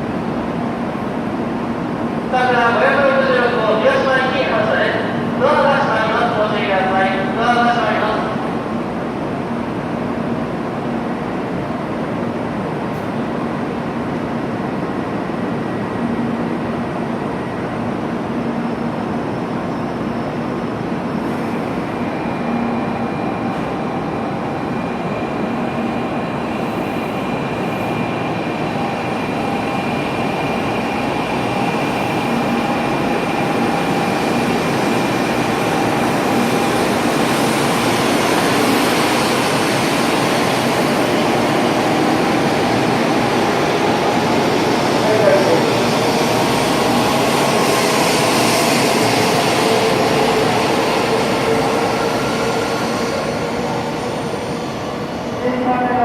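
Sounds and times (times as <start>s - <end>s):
train rolling rumble: 20.0s - 56.0s.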